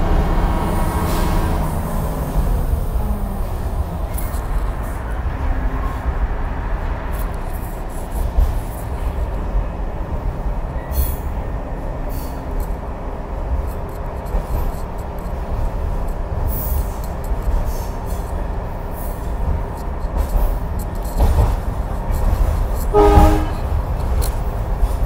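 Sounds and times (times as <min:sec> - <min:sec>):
wheels clicking on rails: 0:00.0 - 0:09.6, 0:12.1 - 0:25.0
railway carriage rumbling: 0:00.0 - 0:25.0.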